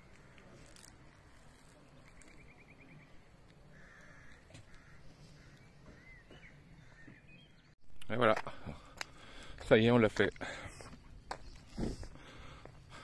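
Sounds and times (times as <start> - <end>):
faint distant birds calling: 0.0 - 7.8.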